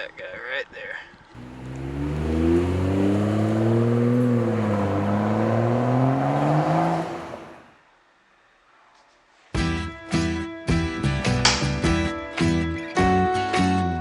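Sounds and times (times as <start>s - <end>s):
dirt bike engine revving: 1.4s - 7.6s.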